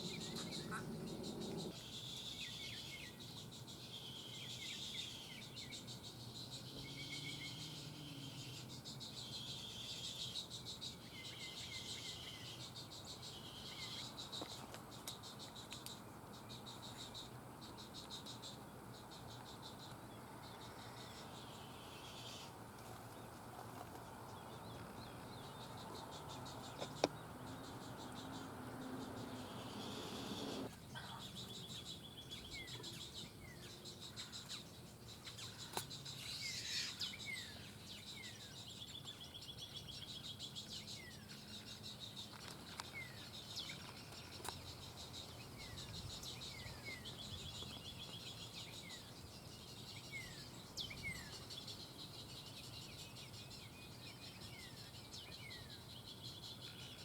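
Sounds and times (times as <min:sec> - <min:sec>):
buzzy chirring calls: 0:00.0 - 0:03.1, 0:25.2 - 0:31.6.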